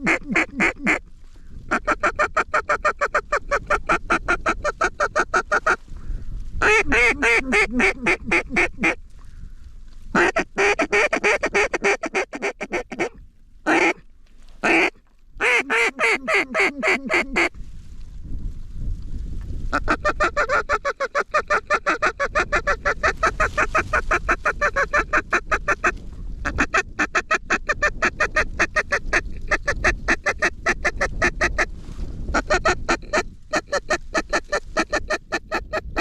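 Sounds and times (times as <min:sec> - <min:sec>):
geese honking: 0:14.6 - 0:17.5.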